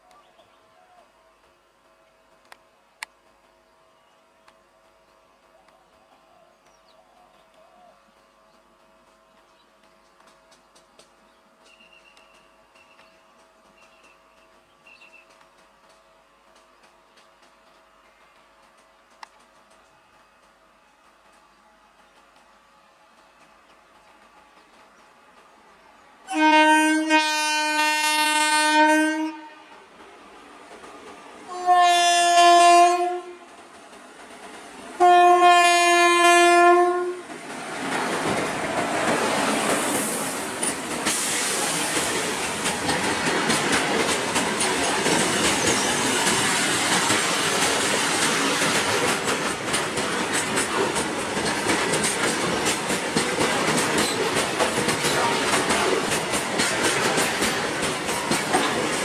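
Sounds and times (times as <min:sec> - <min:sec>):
freight train passing: 0:00.0 - 0:59.0
locomotive horn blasts: 0:26.3 - 0:29.8, 0:31.5 - 0:33.5, 0:35.0 - 0:37.3
wheels clicking over rail joints: 0:37.3 - 0:59.0.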